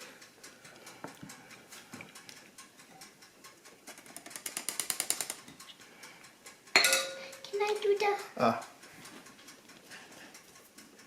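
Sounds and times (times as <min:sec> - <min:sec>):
utensil tapping a mixing bowl: 0:06.8 - 0:07.3.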